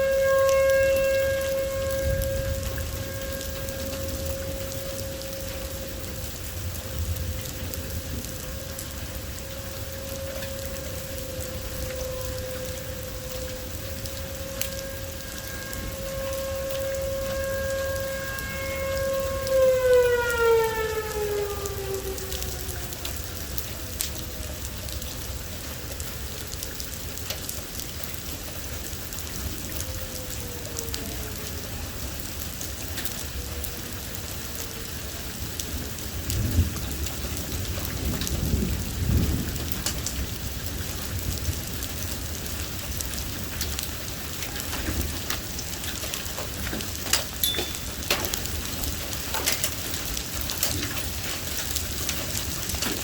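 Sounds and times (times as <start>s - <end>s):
heavy rain falling: 0.0s - 53.0s
siren wailing: 0.0s - 53.0s
thunder rumble: 0.0s - 53.0s.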